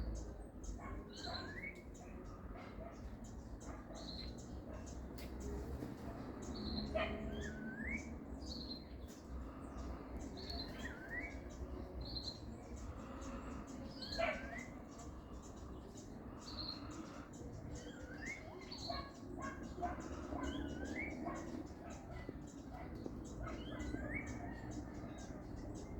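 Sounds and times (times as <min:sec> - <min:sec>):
wild birds calling: 0:00.0 - 0:25.9.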